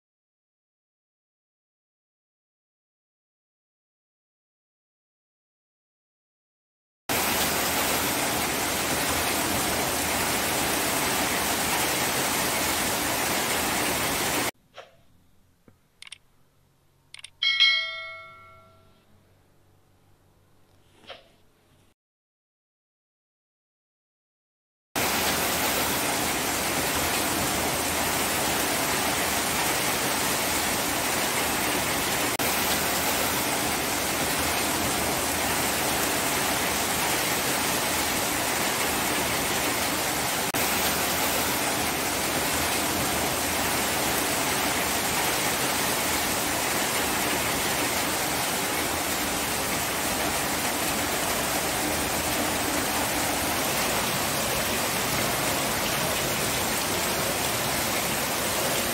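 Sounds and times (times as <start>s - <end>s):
heavy rainfall: 7.1s - 14.5s, 25.0s - 58.9s.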